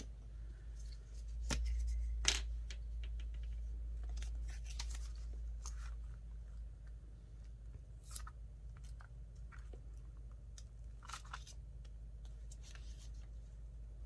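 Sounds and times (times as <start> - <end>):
faint low hum: 0.0 - 14.0
paper crinkling and scraping: 4.0 - 6.3, 12.3 - 13.6.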